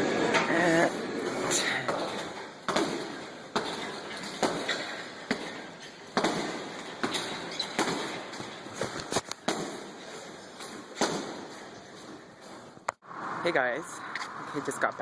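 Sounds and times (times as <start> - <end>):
thuds echoing in large room: 1.6 - 12.6.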